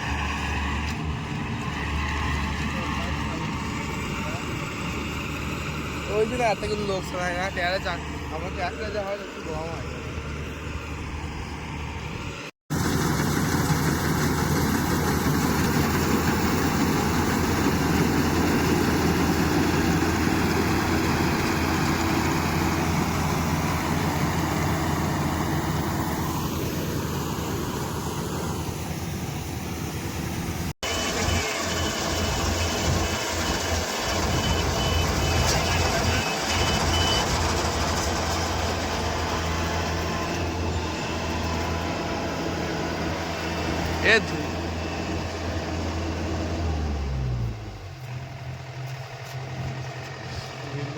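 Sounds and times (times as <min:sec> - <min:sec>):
harvester engine running: 0:00.0 - 0:50.9
rapid electronic beeping: 0:30.9 - 0:37.5.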